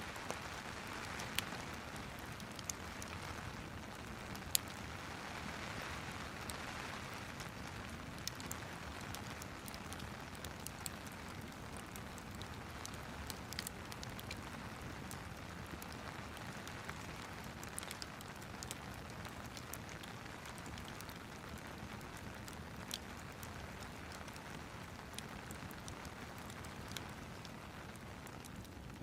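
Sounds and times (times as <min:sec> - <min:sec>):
rain hissing: 0:00.0 - 0:10.3
fire crackling and popping: 0:00.0 - 0:29.0.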